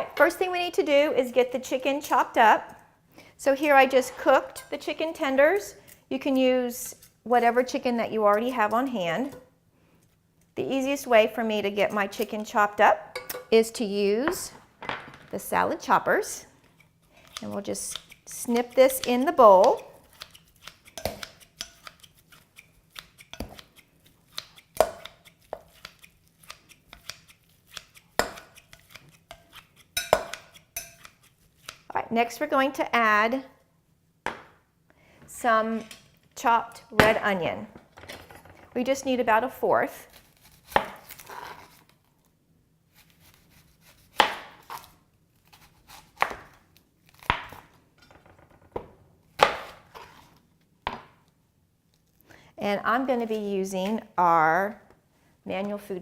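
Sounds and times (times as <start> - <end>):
knife chopping onion: 17.1 - 31.9, 40.1 - 41.8, 43.0 - 47.7.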